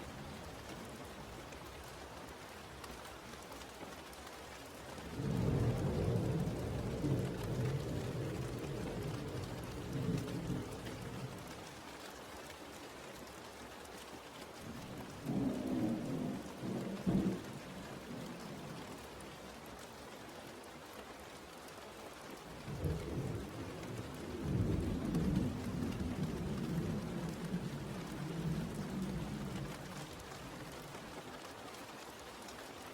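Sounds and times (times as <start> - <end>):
steady rain: 0.0 - 32.9
thunder rumbling: 15.2 - 18.6, 22.7 - 30.7.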